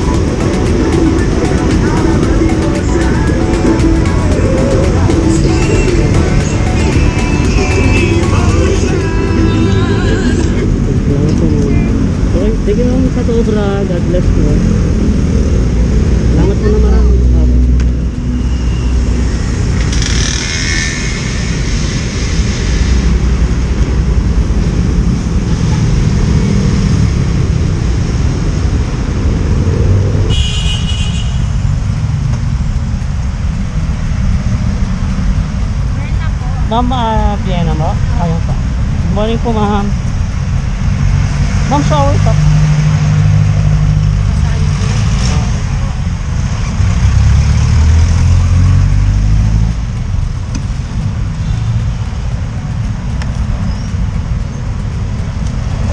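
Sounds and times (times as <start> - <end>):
motorcycle engine running: 0.0 - 18.4, 23.1 - 55.9
road traffic rumble: 0.0 - 55.9
vehicle horn: 30.3 - 31.6.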